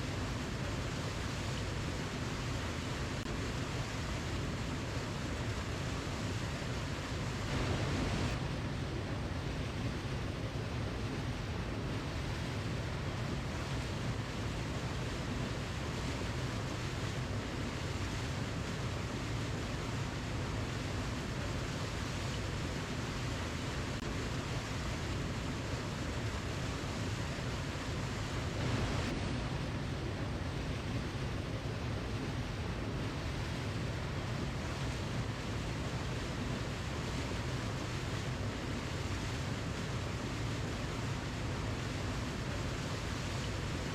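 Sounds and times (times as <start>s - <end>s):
waterfall rushing: 7.3s - 8.4s, 24.0s - 42.0s.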